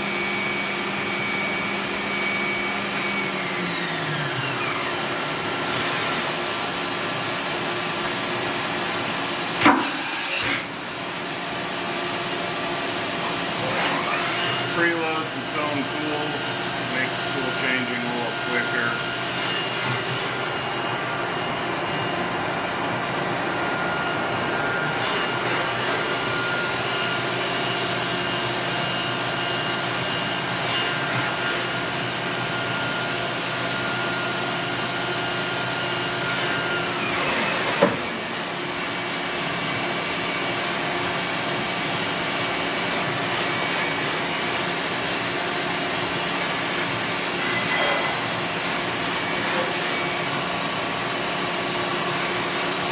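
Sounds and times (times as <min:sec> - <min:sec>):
machining center whirring: 0:00.0 - 0:52.9.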